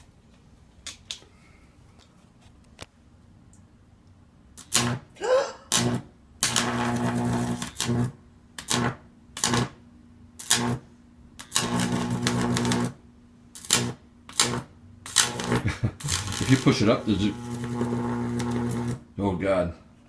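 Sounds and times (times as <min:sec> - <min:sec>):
low mains hum: 0:00.0 - 0:20.0
electric arc snaps: 0:04.6 - 0:05.1, 0:05.7 - 0:09.8, 0:10.4 - 0:10.8, 0:11.4 - 0:19.0
electric arcs crackling and buzzing: 0:04.6 - 0:05.1, 0:05.7 - 0:09.8, 0:10.4 - 0:19.1.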